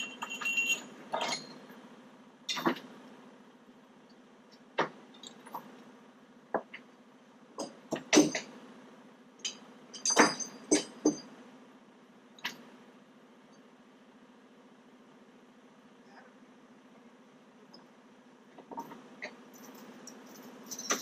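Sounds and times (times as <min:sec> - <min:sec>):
sharp metallic clinks and clanks: 0:00.0 - 0:01.7, 0:05.1 - 0:05.6, 0:09.4 - 0:11.3, 0:18.8 - 0:21.0
steady low hum: 0:00.0 - 0:21.0.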